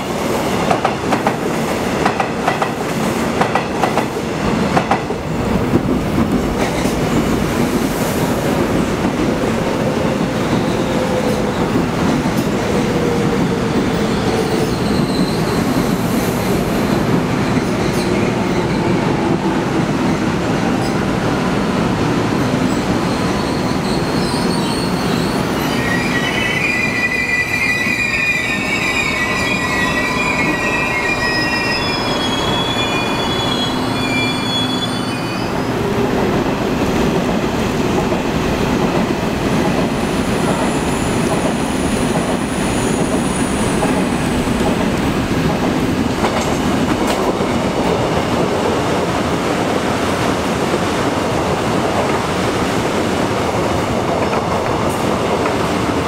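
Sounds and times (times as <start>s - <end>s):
train running and wheel noise: 0.0s - 56.0s
electric train whining: 24.9s - 47.8s.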